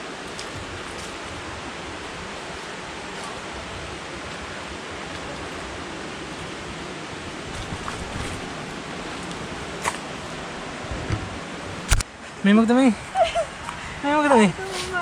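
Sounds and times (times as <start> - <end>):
waterfall rushing: 0.0 - 12.0
brief click: 11.9 - 12.1.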